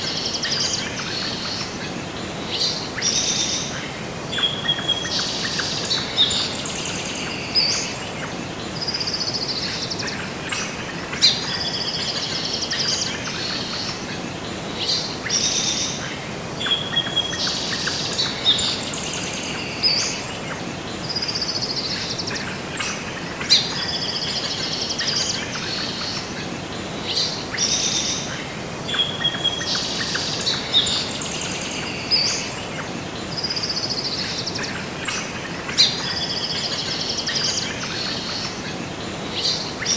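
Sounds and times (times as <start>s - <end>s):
songbirds chirping and trilling: 0.0s - 39.9s
steady background hiss: 0.0s - 39.9s.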